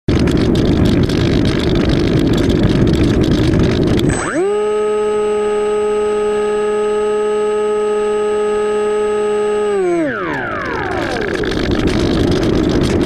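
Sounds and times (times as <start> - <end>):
gliding electronic tone: 4.0 - 13.0.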